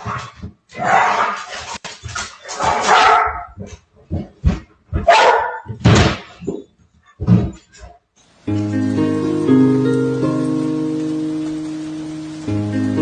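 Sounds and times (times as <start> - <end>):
dog barking and yelping: 2.6 - 3.6, 5.0 - 5.8.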